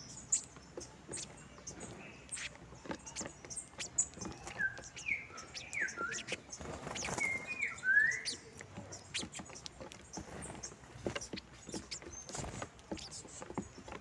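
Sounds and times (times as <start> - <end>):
finches chirping: 0.0 - 14.0
slurred whistled bird notes: 3.1 - 9.6.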